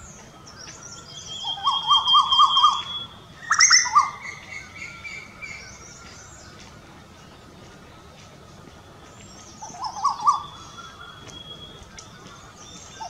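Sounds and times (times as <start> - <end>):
birds calling: 0.0 - 13.0
thin high whistle: 9.9 - 12.2.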